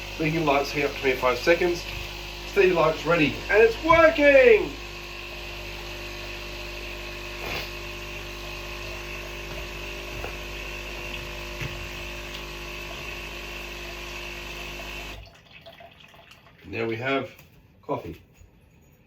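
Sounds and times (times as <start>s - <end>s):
coffee machine pump humming: 0.0s - 16.2s.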